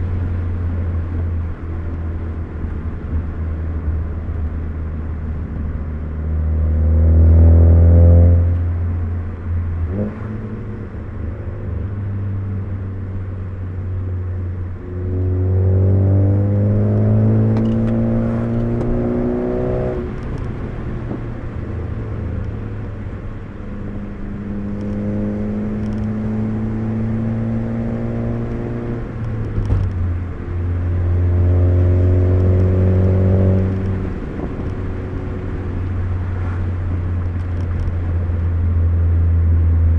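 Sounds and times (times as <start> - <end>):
car engine accelerating: 0.0 - 39.9
road and tyre noise: 0.0 - 39.9.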